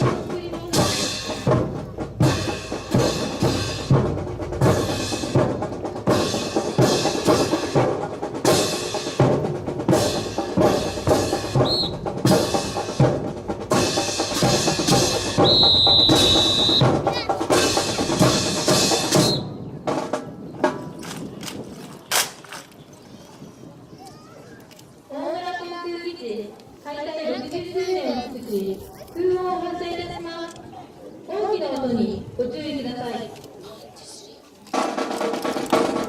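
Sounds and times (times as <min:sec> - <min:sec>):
high whistle tone: 0:15.4 - 0:16.9.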